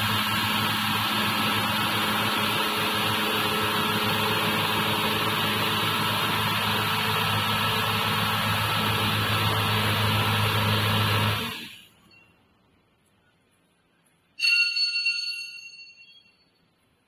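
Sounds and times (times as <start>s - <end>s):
motor hum: 0.0s - 11.8s.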